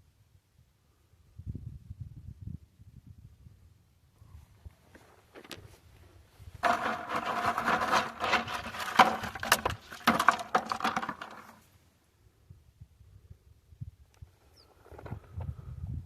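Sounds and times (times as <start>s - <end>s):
rocks clattering in a bucket: 6.6s - 11.7s.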